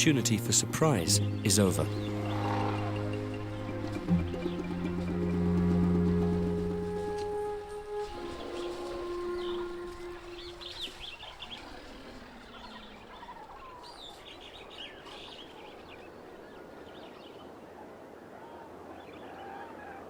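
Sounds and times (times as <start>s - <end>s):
birds chirping and calling: 0.0s - 5.6s, 8.0s - 17.2s
steady outdoor hiss: 0.0s - 17.8s.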